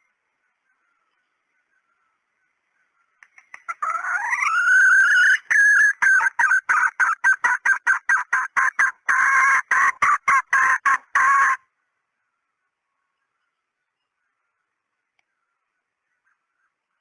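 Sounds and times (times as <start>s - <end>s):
hen squawking and clucking: 3.6s - 11.6s.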